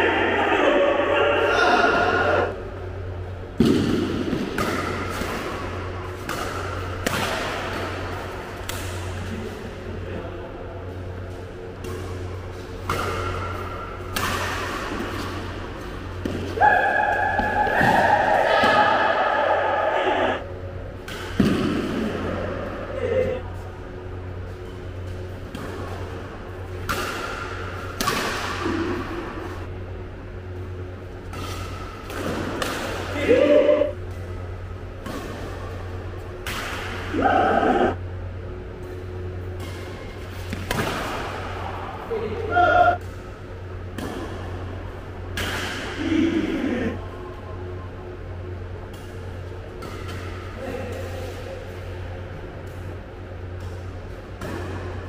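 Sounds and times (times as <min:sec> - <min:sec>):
steady low hum: 0:00.0 - 0:55.0
rackets hitting shuttlecock: 0:03.5 - 0:09.6, 0:11.6 - 0:18.9, 0:21.0 - 0:22.6, 0:24.3 - 0:29.6, 0:30.5 - 0:37.4, 0:38.8 - 0:46.6, 0:48.4 - 0:55.0
badminton racket hitting shuttlecock: 0:11.8 - 0:18.1.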